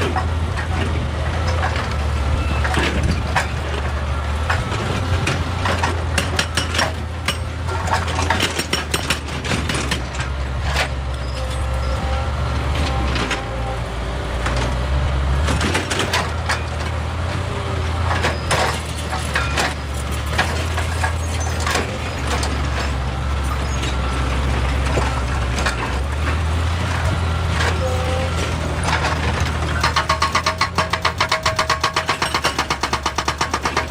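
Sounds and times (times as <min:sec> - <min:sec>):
excavator engine hum: 0:00.0 - 0:33.9.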